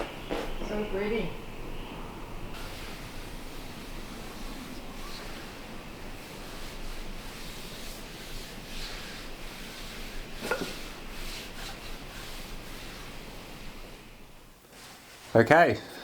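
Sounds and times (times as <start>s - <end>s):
sanding wood: 2.6s - 14.1s.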